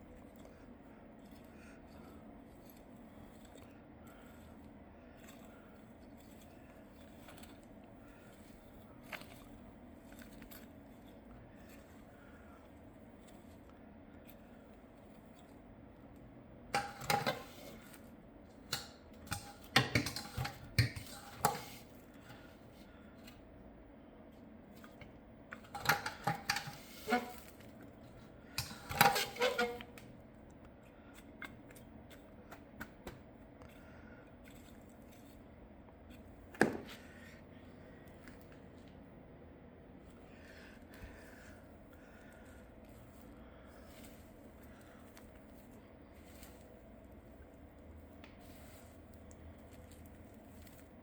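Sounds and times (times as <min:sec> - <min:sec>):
objects clicking and knocking: 0:16.8 - 0:17.7, 0:18.7 - 0:21.8, 0:24.8 - 0:27.8.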